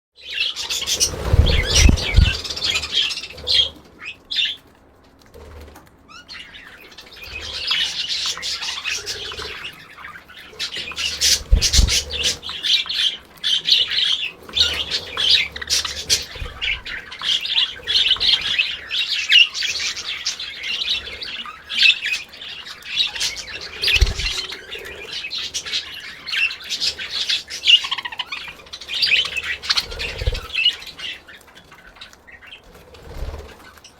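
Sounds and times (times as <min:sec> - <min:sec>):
budgerigars chattering and chirping: 0:00.2 - 0:04.6, 0:06.1 - 0:33.9
low thumps: 0:01.2 - 0:02.4.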